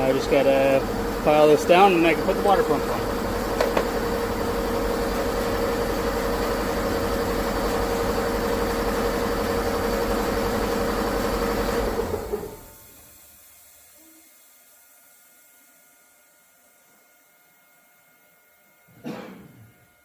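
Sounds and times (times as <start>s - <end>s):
machine motor humming: 0.0s - 12.9s.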